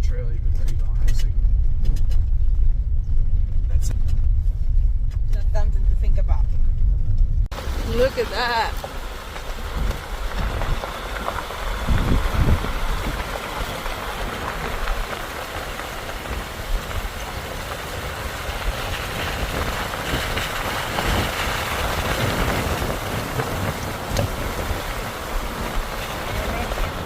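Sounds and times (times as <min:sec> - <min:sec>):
vehicle engine and road rumble: 0:00.0 - 0:27.0
vehicle bumps: 0:06.3 - 0:27.0.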